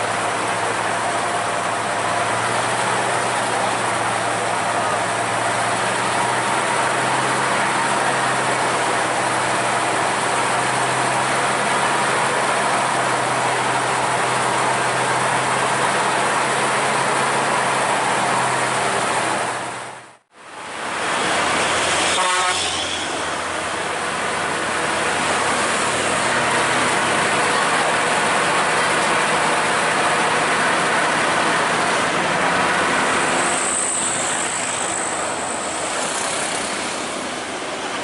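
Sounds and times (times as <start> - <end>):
diesel truck engine running: 0.0 - 38.0
truck horn note: 21.8 - 23.4.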